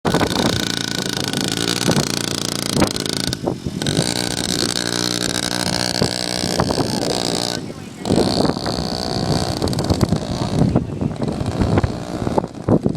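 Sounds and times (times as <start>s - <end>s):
dirt bike engine running: 0.0s - 12.9s.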